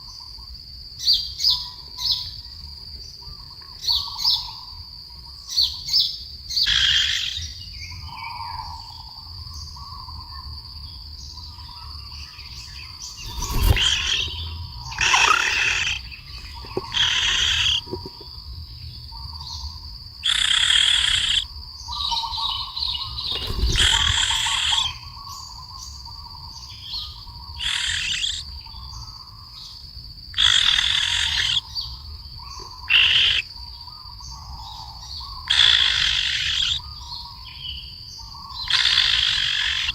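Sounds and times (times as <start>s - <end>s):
birds giving harsh rasping calls: 6.5s - 7.6s, 13.0s - 18.3s, 20.2s - 25.7s, 26.9s - 29.2s, 30.3s - 33.6s, 34.3s - 37.3s, 38.4s - 39.9s.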